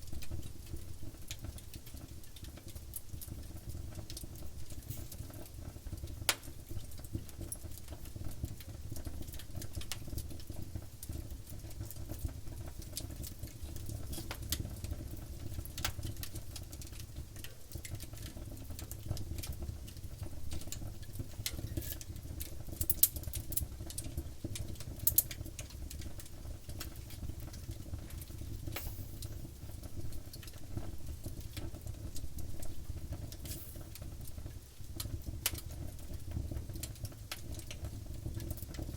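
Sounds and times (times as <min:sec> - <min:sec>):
fire snaps: 0:00.0 - 0:38.9
wood fire crackling and popping: 0:00.0 - 0:38.9.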